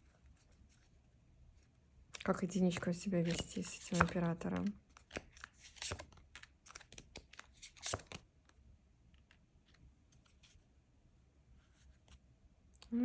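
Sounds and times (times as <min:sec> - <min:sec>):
cards being shuffled: 0:02.2 - 0:08.2.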